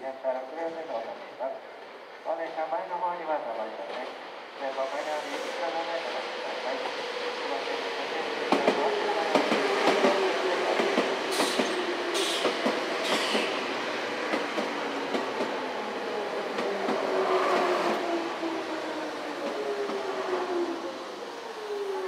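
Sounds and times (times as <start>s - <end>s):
train wheels clicking over joints: 8.5s - 15.7s.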